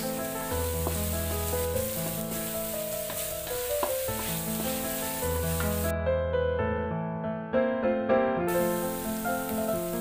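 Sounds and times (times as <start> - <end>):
spice paste sizzling in a wok: 0.0 - 5.9, 8.5 - 10.0
wooden spatula stirring: 0.0 - 5.9.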